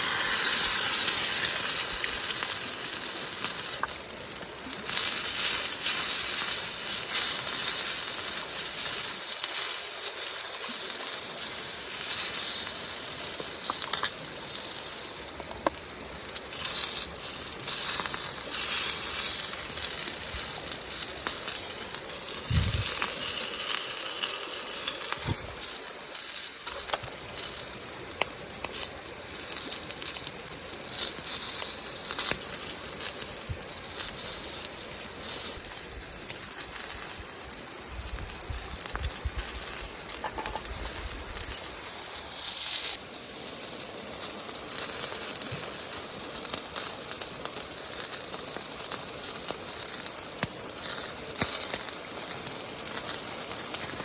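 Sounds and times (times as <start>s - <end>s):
steady high hiss: 0.0s - 54.0s
wood fire crackling: 0.0s - 54.0s
sharp pops: 24.9s - 25.7s.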